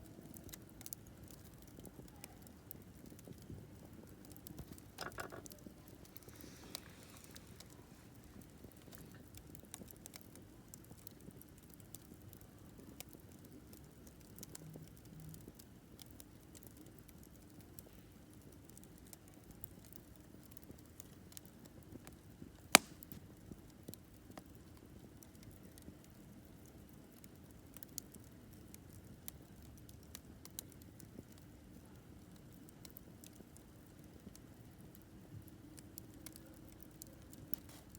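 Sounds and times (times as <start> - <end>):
campfire crackling: 0.0 - 37.9
sharp loud wood pop: 22.8 - 23.2.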